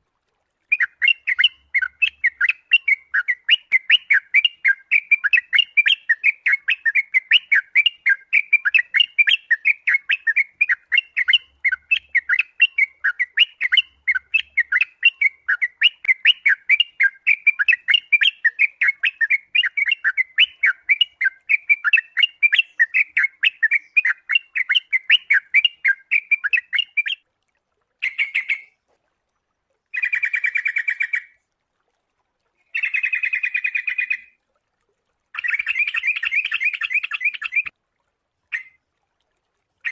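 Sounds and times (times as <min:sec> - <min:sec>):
bulbul chirping: 0:35.4 - 0:37.7.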